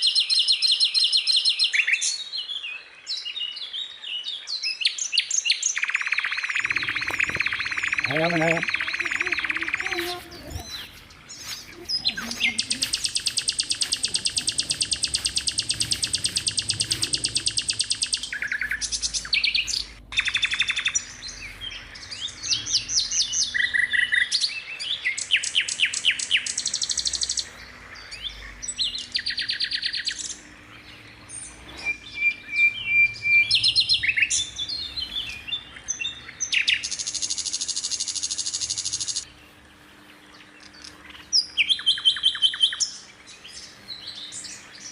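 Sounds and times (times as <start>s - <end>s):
skylark singing trills and chirps: 5.8s - 39.2s.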